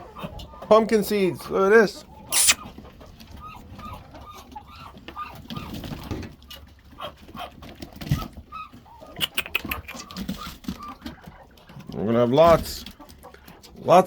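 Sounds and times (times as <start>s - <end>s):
poultry soft calls: 2.1s - 2.6s, 8.5s - 11.4s.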